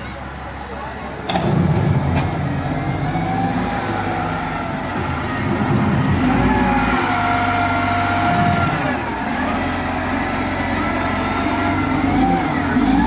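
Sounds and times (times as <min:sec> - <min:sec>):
bulldozer diesel engine drone: 0:00.0 - 0:13.0.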